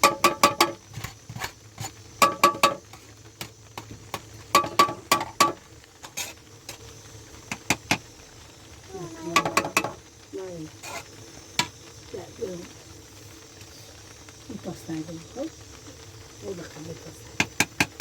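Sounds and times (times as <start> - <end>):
utensil clinking against metal pot: 2.2 - 2.9, 4.5 - 5.6.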